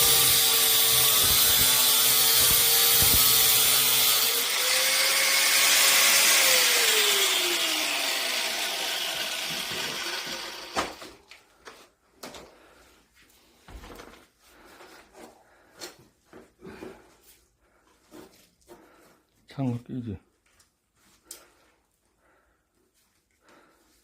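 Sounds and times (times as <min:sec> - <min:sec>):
power tool motor hissing: 0:00.0 - 0:10.9.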